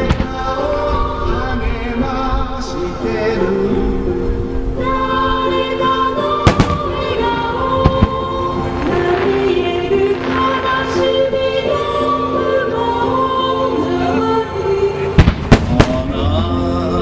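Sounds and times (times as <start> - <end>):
wind rumble on microphone: 0.0 - 11.4
song over loudspeakers: 0.0 - 17.0
firework bursts: 5.0 - 12.9, 15.1 - 16.4.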